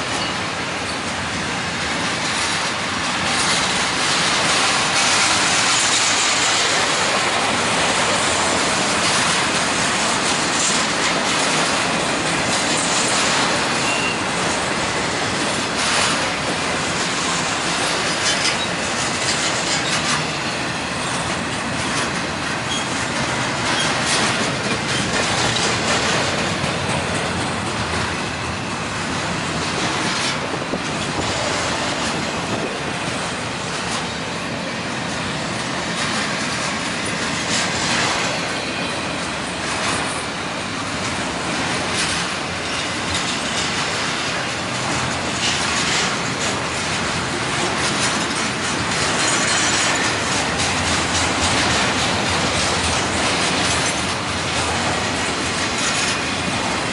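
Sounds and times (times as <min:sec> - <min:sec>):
freight train rolling past: 0:00.0 - 0:56.9
steel wheels rushing on rail: 0:00.0 - 0:56.9
wheels clicking over rail joints: 0:00.0 - 0:56.9.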